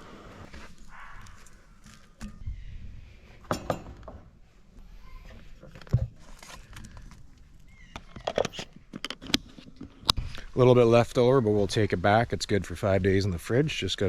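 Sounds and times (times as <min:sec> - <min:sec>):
food containers and utensils knocking: 0:03.5 - 0:04.2.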